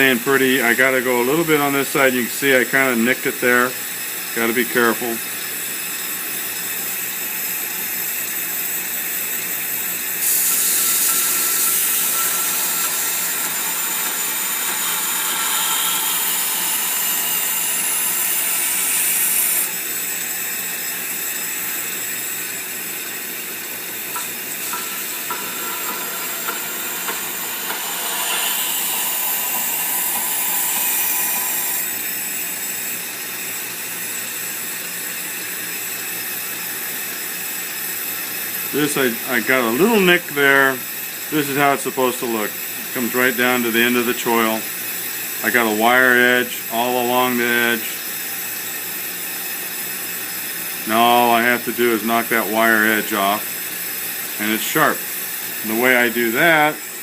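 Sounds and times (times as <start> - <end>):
knife grinder motor whine: 2.9 - 57.0
blade grinding hiss: 3.0 - 33.6.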